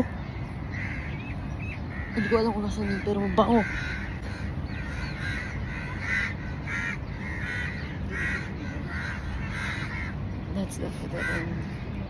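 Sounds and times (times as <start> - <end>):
bird calling: 0.0 - 12.0.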